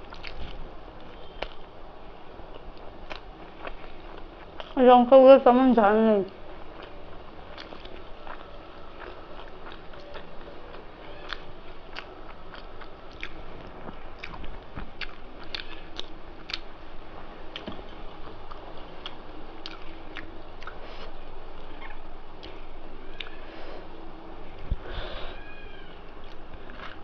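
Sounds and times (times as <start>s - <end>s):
close chewing and crunching: 0.0s - 1.7s, 2.4s - 5.4s, 6.1s - 16.8s, 17.5s - 23.5s, 26.2s - 27.0s
wet mouth clicks: 15.0s - 16.7s.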